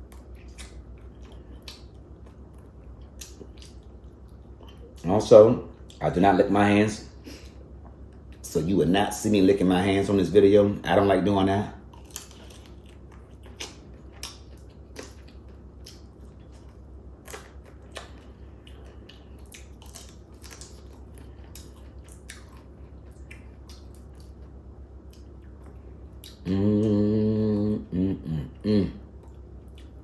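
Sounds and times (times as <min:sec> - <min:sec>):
chewing: 0:00.0 - 0:05.0, 0:11.8 - 0:27.6, 0:29.0 - 0:30.0
crab shells cracking: 0:19.2 - 0:22.5
person humming a long note: 0:26.4 - 0:29.0.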